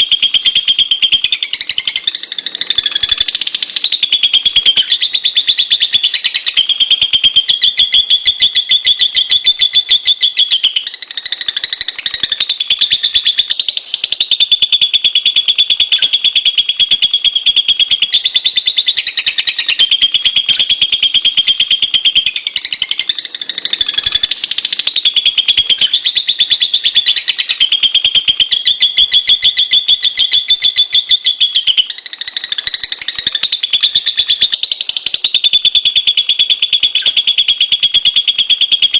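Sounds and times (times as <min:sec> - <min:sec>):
lovebirds chattering: 0:01.2 - 0:06.7, 0:18.0 - 0:35.3.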